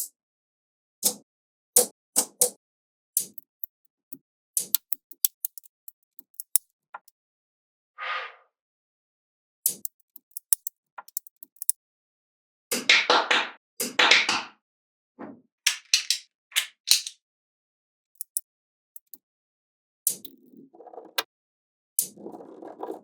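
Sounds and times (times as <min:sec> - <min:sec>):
magnetic balls clicking together: 0:03.2 - 0:03.8, 0:04.6 - 0:07.1, 0:09.7 - 0:11.8, 0:18.2 - 0:18.4, 0:19.0 - 0:19.2
magnetic balls rattling: 0:09.8 - 0:11.7, 0:18.2 - 0:18.4.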